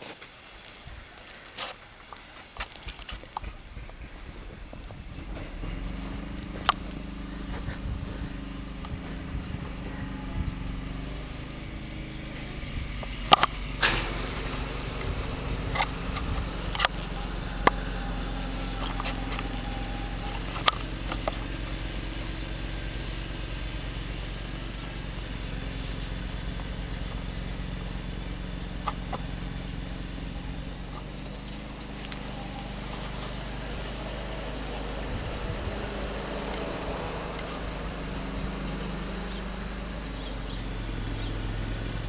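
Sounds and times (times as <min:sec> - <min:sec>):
steady low hum: 0:00.0 - 0:42.0
alpacas humming softly: 0:14.8 - 0:42.0.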